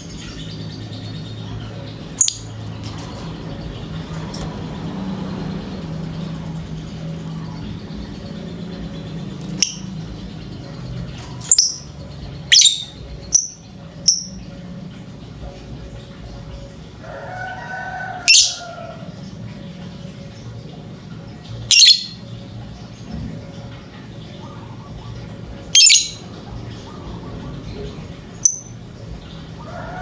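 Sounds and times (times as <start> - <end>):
low steady hum: 0.0 - 30.0
lovebird shrill chirps: 12.5 - 14.3, 21.7 - 22.2, 25.8 - 26.2, 28.4 - 28.7.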